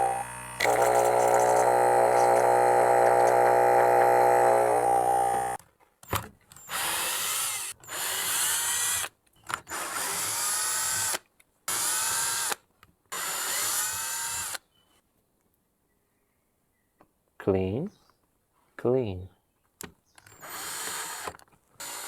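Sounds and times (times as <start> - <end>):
cordless drill whining: 0.0 - 5.6, 6.6 - 12.6, 20.3 - 22.0.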